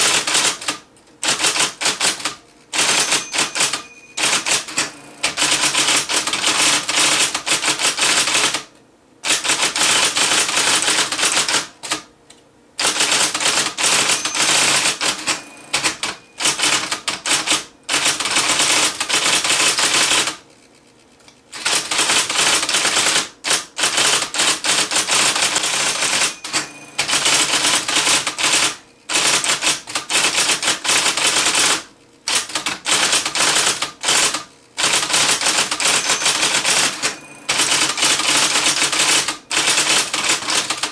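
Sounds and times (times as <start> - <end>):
typewriter motor hum: 0.0 - 8.6, 12.8 - 20.8, 21.5 - 40.9
electric typewriter typing: 0.0 - 12.1, 12.8 - 20.4, 21.5 - 40.9.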